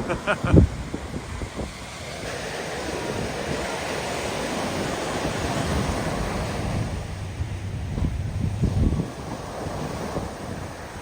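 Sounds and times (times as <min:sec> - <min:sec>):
ocean surf washing on beach: 0:00.0 - 0:11.0
wind buffeting microphone: 0:00.0 - 0:11.0.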